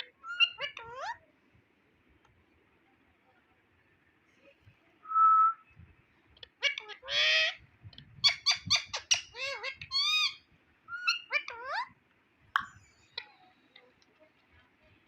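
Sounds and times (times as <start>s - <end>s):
parrot calling: 0.0s - 1.2s, 6.5s - 7.6s, 8.2s - 12.0s.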